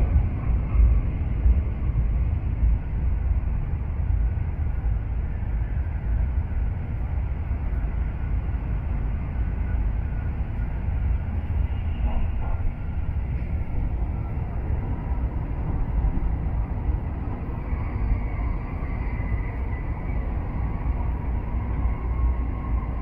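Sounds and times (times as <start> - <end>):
bullet train rumble: 0.0 - 23.0.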